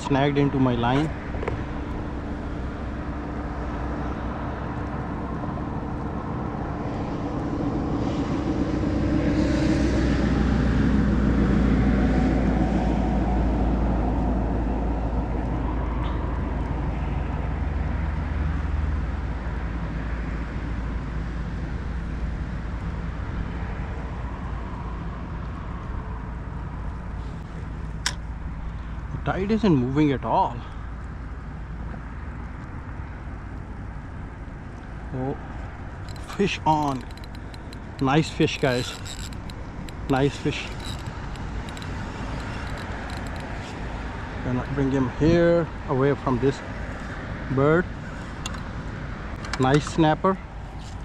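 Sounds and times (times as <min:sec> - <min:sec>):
vehicle engine passing by: 0:06.8 - 0:17.3.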